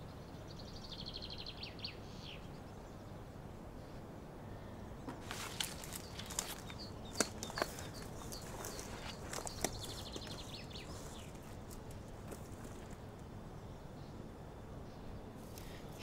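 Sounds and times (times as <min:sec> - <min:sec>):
dry leaves and twigs crunching: 0:05.2 - 0:13.2.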